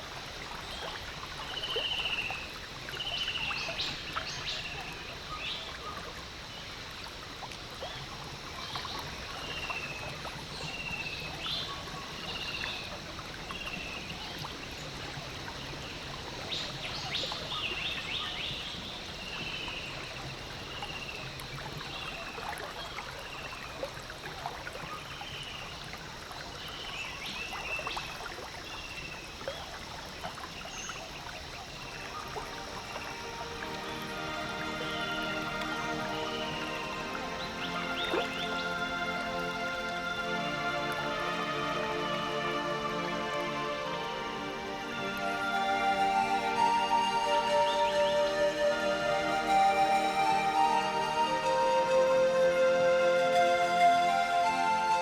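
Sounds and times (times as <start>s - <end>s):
water trickling and lapping: 0.0s - 55.0s.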